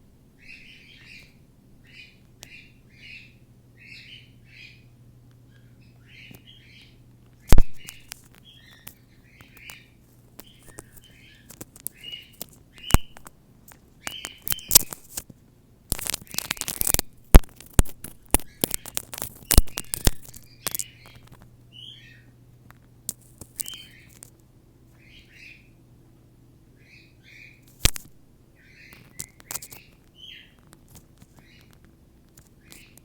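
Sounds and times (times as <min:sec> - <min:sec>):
cockatiel chirping: 0:00.4 - 0:04.9, 0:05.5 - 0:13.3, 0:14.0 - 0:15.1, 0:18.3 - 0:22.3, 0:23.5 - 0:24.2, 0:25.0 - 0:25.8, 0:26.8 - 0:27.7, 0:28.6 - 0:30.7, 0:31.3 - 0:31.8, 0:32.6 - 0:33.0
sharp clicks: 0:07.3 - 0:09.8, 0:10.4 - 0:15.3, 0:15.9 - 0:21.5, 0:27.7 - 0:28.2.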